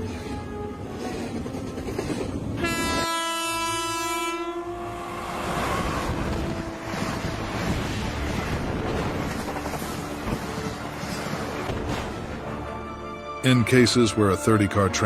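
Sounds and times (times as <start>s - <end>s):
moving train rumble: 0.0s - 13.2s
locomotive air horn blast: 2.6s - 7.8s.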